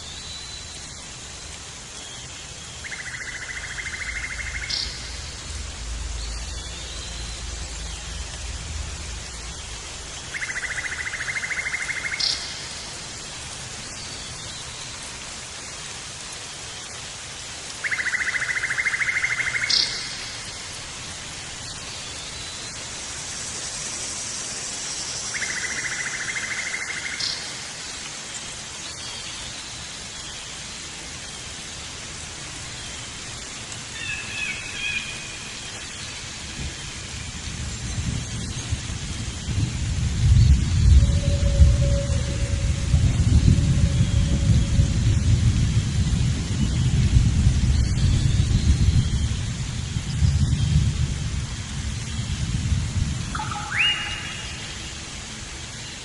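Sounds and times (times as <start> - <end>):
steady outdoor hiss: 0.0 - 56.0
bird trilling call: 53.3 - 54.6.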